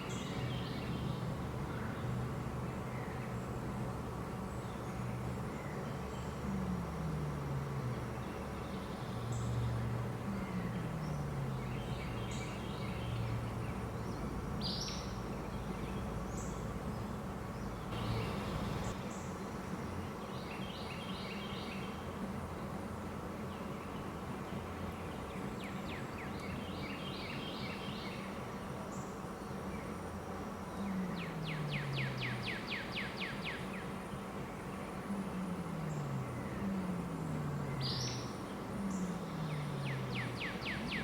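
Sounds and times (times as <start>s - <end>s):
low hum: 0.0s - 19.0s
small birds chirping: 0.0s - 22.2s, 23.3s - 41.0s.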